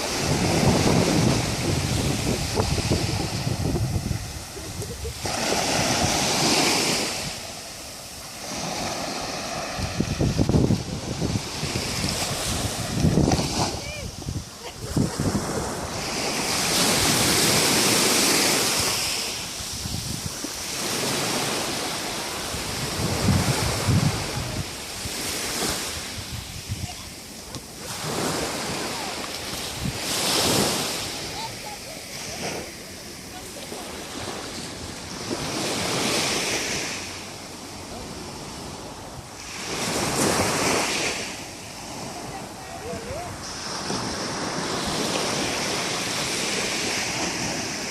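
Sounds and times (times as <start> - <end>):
wind buffeting microphone: 0.0 - 7.5, 9.6 - 21.4, 22.4 - 31.5
sea waves washing onto shore: 0.0 - 47.9.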